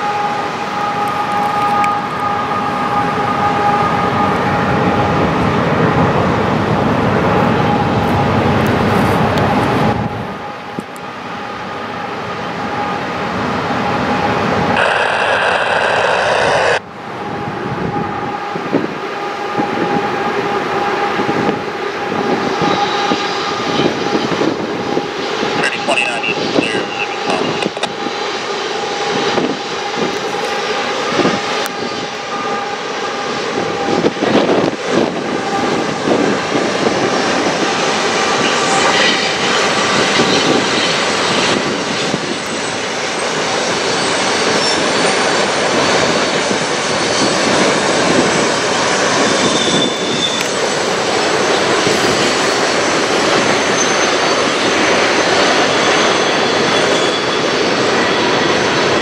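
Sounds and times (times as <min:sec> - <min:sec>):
diesel locomotive engines running: 0:00.0 - 0:59.0
freight cars rumbling: 0:45.2 - 0:57.6.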